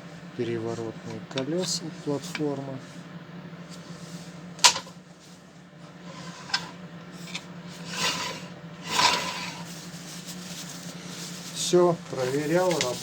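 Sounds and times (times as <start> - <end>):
steady low hum: 0.0 - 13.0
scraping rubs: 6.0 - 13.0.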